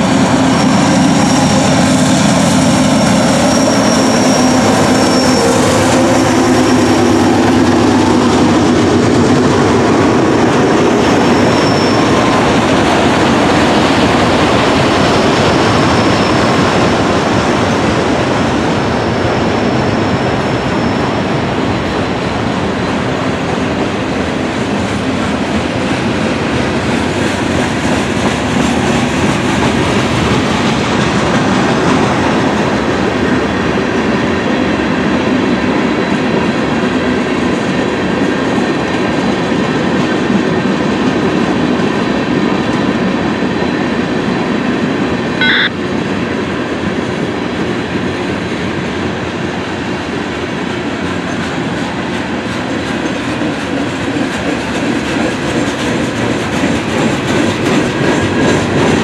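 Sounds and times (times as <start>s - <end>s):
clickety-clack over rail joints: 0.0s - 59.0s
train wheels rumbling on rails: 0.0s - 59.0s
high-pitched wheel squeal: 2.8s - 7.5s, 11.2s - 12.4s, 45.4s - 45.7s.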